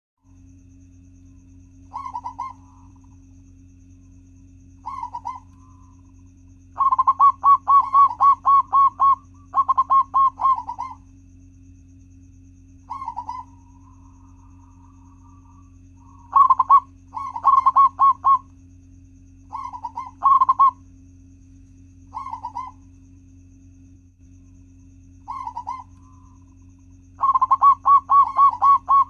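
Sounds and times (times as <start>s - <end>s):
steady low hum: 0.2s - 29.0s
dove cooing: 1.8s - 3.3s, 4.8s - 11.1s, 12.8s - 18.6s, 19.4s - 20.9s, 22.1s - 22.9s, 25.2s - 29.0s.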